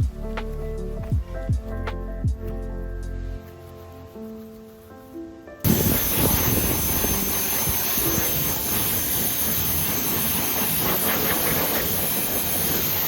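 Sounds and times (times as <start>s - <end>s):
car wash equipment hissing: 5.7s - 13.0s.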